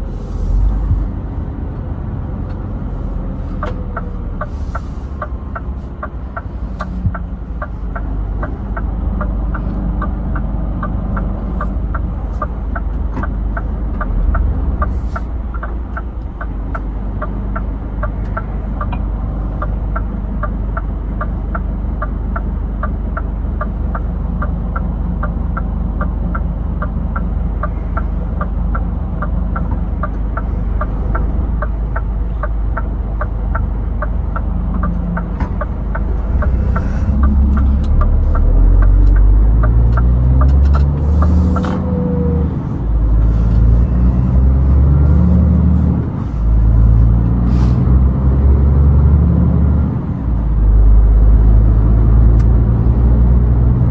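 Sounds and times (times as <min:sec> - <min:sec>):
truck engine and road rumble: 0:00.0 - 0:53.9
regular light ticking: 0:03.6 - 0:41.7.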